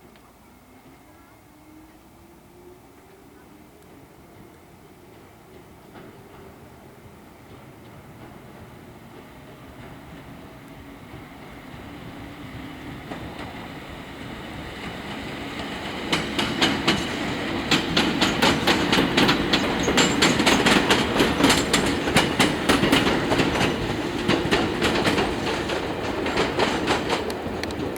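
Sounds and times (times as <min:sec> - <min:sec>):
train rumble: 0:00.0 - 0:27.9
train wheels clattering over rail joints: 0:13.0 - 0:27.9.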